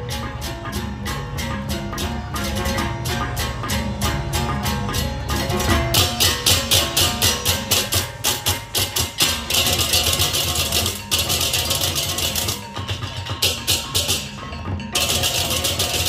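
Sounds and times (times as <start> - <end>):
drums: 0.0 - 16.0
ringing gong tones: 0.0 - 16.0
hand cymbal crashes: 4.4 - 16.0.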